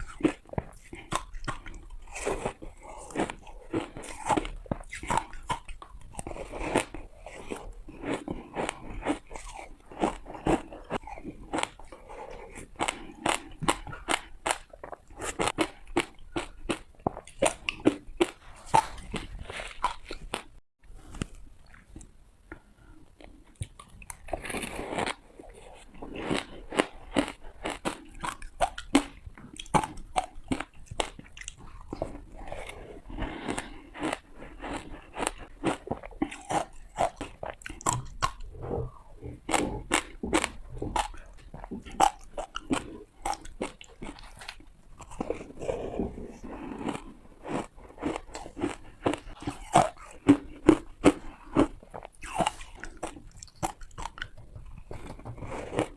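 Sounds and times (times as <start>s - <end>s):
ice crunched between teeth: 46.3s - 54.3s.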